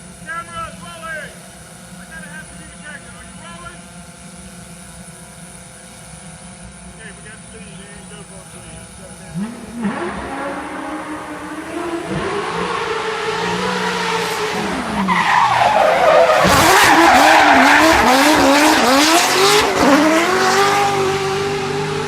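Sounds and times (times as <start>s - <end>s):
race car engine revving: 0.0s - 22.0s
tyres squealing: 9.3s - 20.5s.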